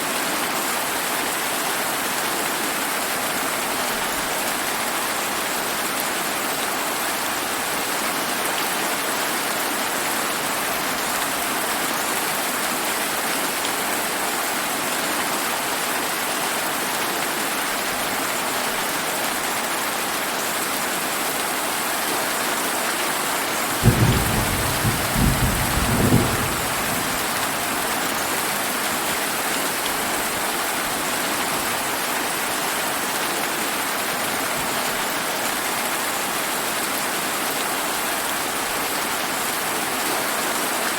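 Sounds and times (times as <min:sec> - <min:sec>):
rain falling: 0:00.0 - 0:40.9
thunder clap and rumble: 0:23.8 - 0:27.9.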